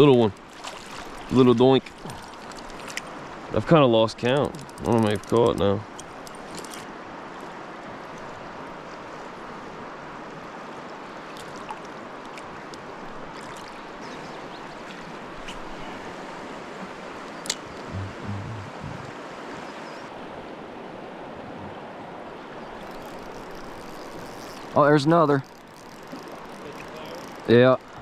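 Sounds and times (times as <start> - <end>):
river water rushing: 0.0 - 28.0
faint clicks: 4.2 - 6.8, 25.4 - 28.0.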